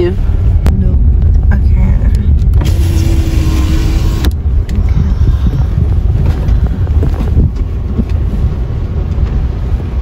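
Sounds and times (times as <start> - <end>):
vehicle rumbling over rough track: 0.0 - 10.0
wind buffeting microphone: 0.0 - 10.0
electric window whirring: 2.6 - 4.4.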